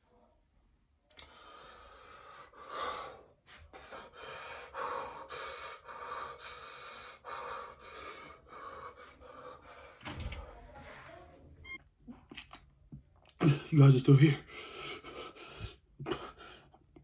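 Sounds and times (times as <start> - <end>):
person gasping and breathing hard: 1.2 - 10.0.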